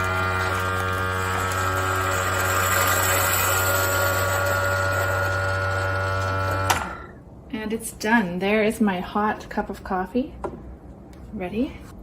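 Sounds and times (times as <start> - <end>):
water pump buzzing: 0.0 - 7.2.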